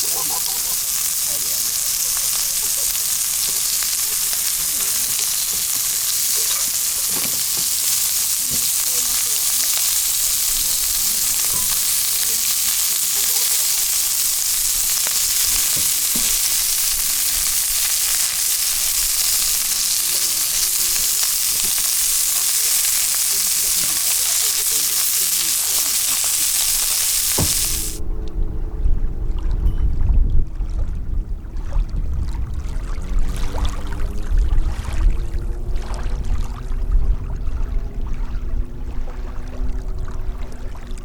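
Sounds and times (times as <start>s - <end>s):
faint crackles: 0.0s - 28.0s
food sizzling in a hot pan: 0.0s - 28.0s.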